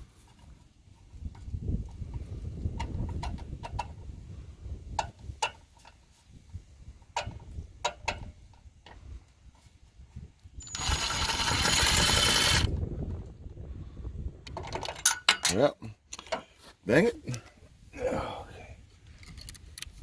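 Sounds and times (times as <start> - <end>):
cordless drill driving screw into metal: 10.6 - 12.7
clicks and knocks of tools: 14.5 - 16.4, 19.1 - 20.0.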